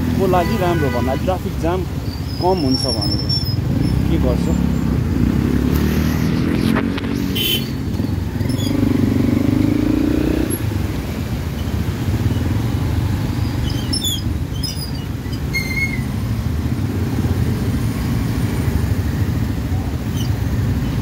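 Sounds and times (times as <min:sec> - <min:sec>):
motorcycle engine and road rumble: 0:00.0 - 0:21.0
engine revving: 0:03.6 - 0:11.0.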